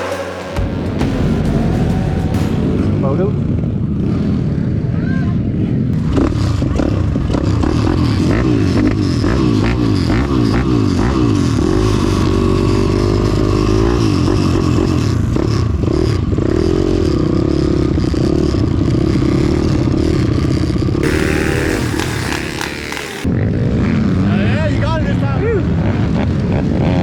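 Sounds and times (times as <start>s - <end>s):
pit bike engines revving: 0.0s - 17.6s, 21.0s - 23.3s.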